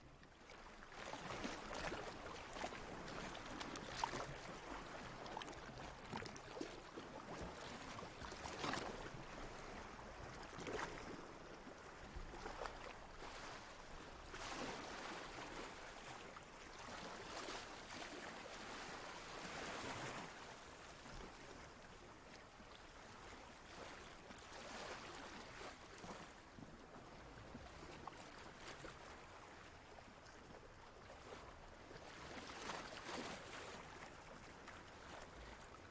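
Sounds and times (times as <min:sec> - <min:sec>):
water lapping and sloshing: 0:00.0 - 0:35.9.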